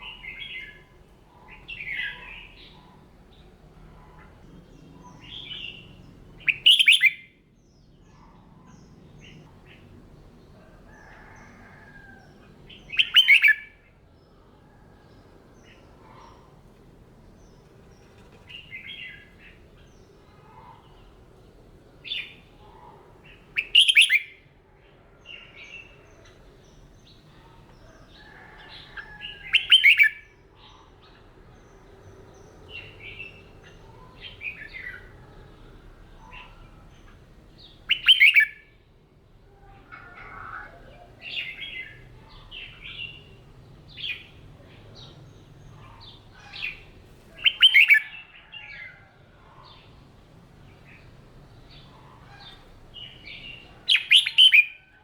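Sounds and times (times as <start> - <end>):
bird warbling song: 0.0 - 7.2, 12.7 - 13.7, 22.0 - 24.3, 25.4 - 35.3, 36.2 - 38.7, 39.7 - 50.0, 50.7 - 55.0
soft bird chirps: 0.0 - 7.2, 44.0 - 48.7, 51.8 - 55.0.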